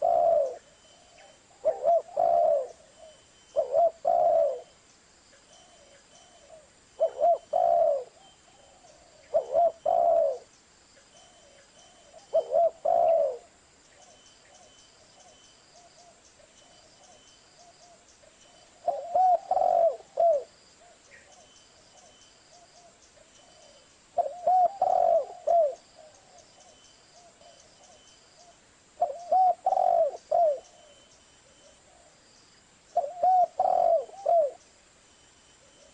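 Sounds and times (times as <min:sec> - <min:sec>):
dove cooing: 0:00.0 - 0:04.8, 0:05.5 - 0:10.5, 0:11.2 - 0:16.2, 0:18.6 - 0:32.2, 0:32.9 - 0:34.6.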